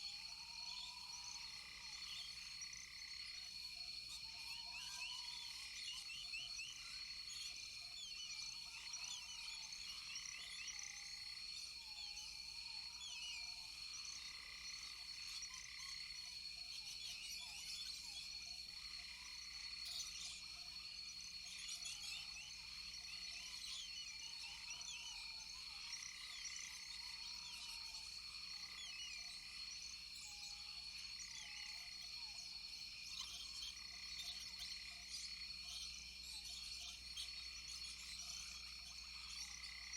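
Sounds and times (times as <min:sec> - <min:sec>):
frogs chirping: 0:00.0 - 0:39.9.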